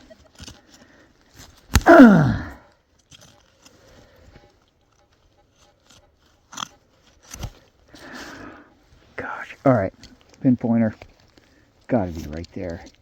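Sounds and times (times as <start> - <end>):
grunt of effort: 1.8 - 2.6
hand tool scraping soil: 2.9 - 8.4.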